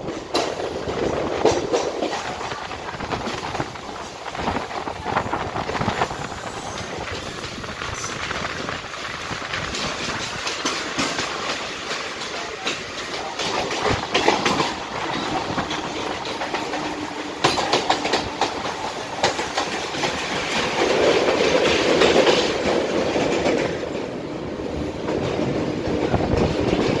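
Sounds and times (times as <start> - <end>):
wheels clattering over rail joints: 0.0 - 24.2
trains rumbling: 0.0 - 27.0.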